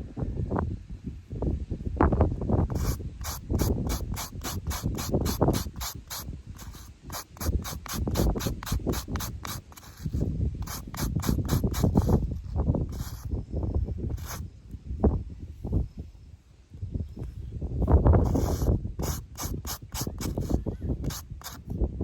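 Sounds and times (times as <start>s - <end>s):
wind on microphone: 0.0s - 22.0s.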